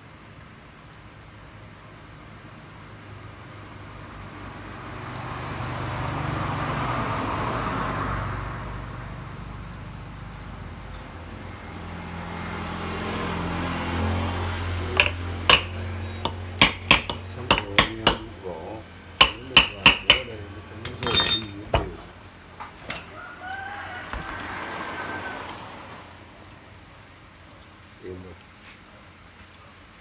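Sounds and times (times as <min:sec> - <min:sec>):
metallic clinks and knocks: 0:14.0 - 0:18.4, 0:19.2 - 0:22.1, 0:22.8 - 0:23.2.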